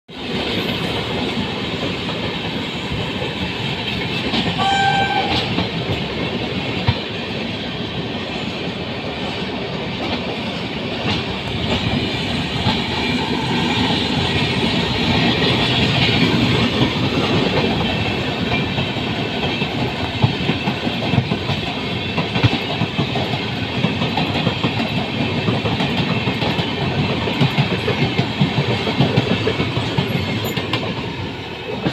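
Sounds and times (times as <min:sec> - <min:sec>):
train wheels rumbling on rails: 0:00.1 - 0:31.9
train horn: 0:04.5 - 0:05.6.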